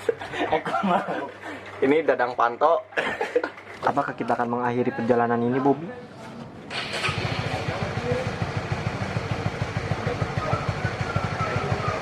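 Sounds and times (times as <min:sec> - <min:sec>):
motorcycle engine running: 0:06.7 - 0:12.0.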